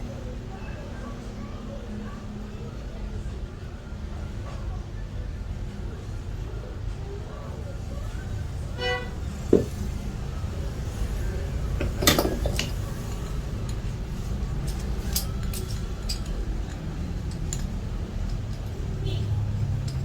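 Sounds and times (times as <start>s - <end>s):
metal parts and tools clinking: 11.0s - 20.0s.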